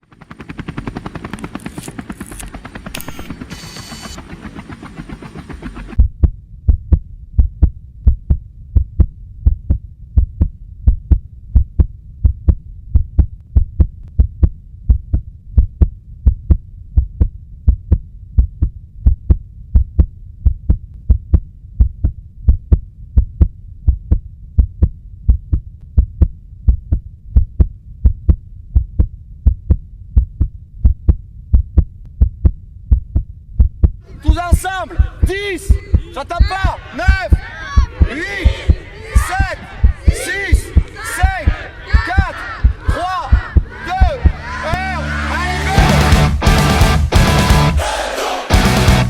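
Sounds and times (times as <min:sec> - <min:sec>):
low hum: 0:00.0 - 0:34.2
heartbeat thumping: 0:05.5 - 0:44.6.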